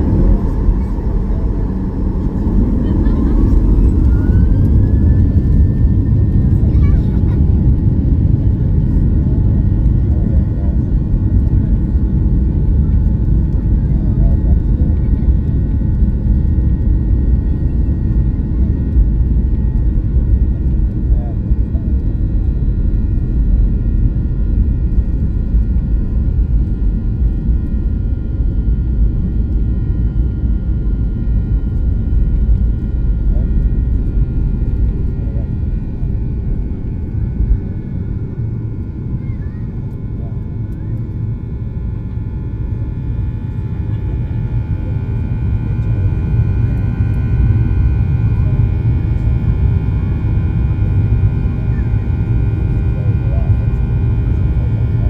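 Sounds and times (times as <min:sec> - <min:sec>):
high jet whine: 0:00.0 - 0:15.1
jet engines rumbling: 0:00.0 - 0:55.0
steady whining tones: 0:00.0 - 0:55.0.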